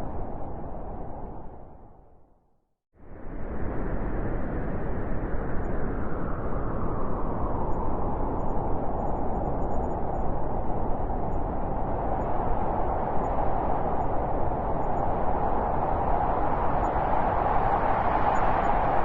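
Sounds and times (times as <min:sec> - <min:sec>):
howling blizzard wind: 0:00.0 - 0:02.3, 0:03.0 - 0:19.0.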